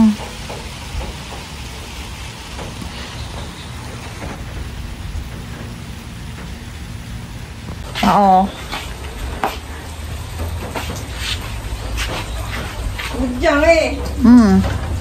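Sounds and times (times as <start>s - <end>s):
low rumble: 0.0s - 10.6s
raindrops pattering: 0.0s - 15.0s
steady rain hiss: 0.0s - 15.0s.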